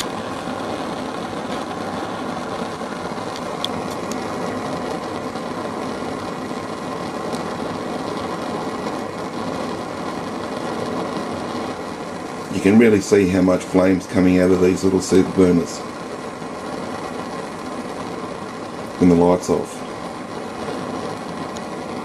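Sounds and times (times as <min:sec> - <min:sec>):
burner flame jet hissing: 0:00.0 - 0:22.0.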